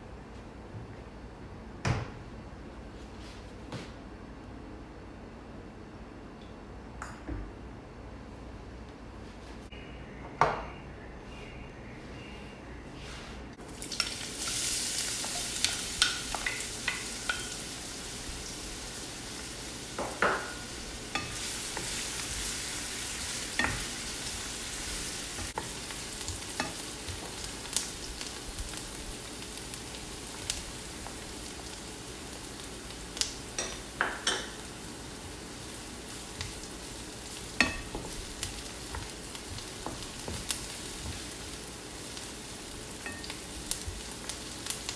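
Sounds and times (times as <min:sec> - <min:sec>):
food sizzling in hot oil: 0:13.6 - 0:44.9.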